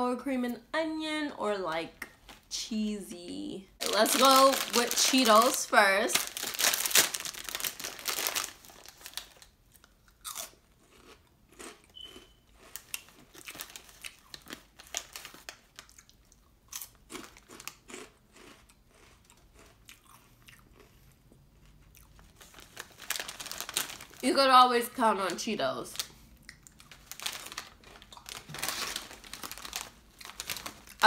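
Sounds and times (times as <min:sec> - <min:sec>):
crunchy snack chewing: 0:06.2 - 0:24.2.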